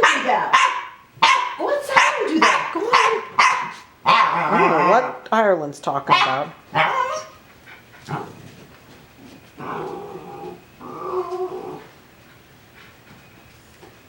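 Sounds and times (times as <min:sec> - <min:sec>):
dog yipping: 0:00.0 - 0:05.2, 0:06.1 - 0:07.4
dog whining: 0:06.2 - 0:07.5, 0:09.5 - 0:12.0.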